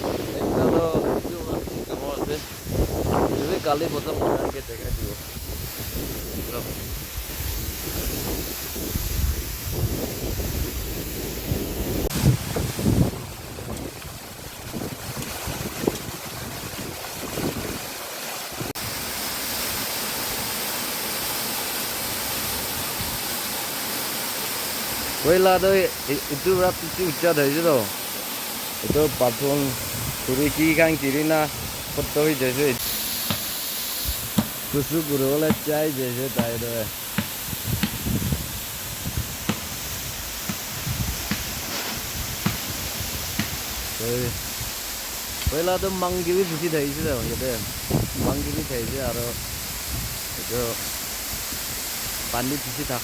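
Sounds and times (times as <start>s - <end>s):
wind buffeting microphone: 0.0s - 17.8s, 34.0s - 46.2s, 46.9s - 50.6s
waterfall rushing: 12.1s - 47.9s
waterfall roaring: 17.8s - 33.6s.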